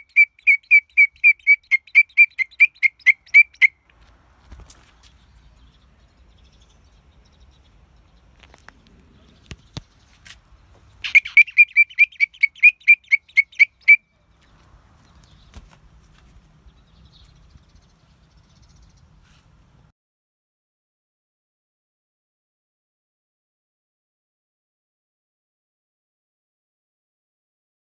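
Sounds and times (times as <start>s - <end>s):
bird chirping rapidly: 0.0s - 3.8s, 9.1s - 15.6s
sharp clicks: 8.5s - 9.9s.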